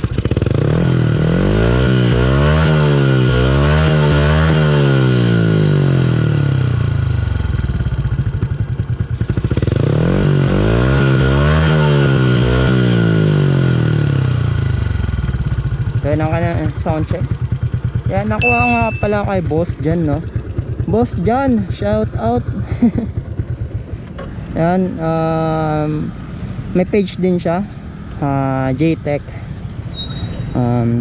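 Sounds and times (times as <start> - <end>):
motorcycle engine idling: 0.0 - 0.7, 5.5 - 10.4, 13.2 - 28.9
motorcycle engine revving: 0.0 - 26.9.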